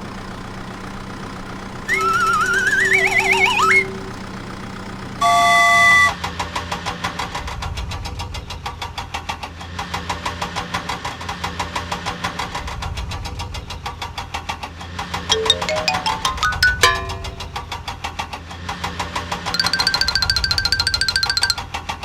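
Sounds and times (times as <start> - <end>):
engine chugging: 0.0 - 6.2
wavering whistle sliding upward: 1.9 - 4.2, 5.2 - 6.2
vehicle horn honking: 5.2 - 6.1.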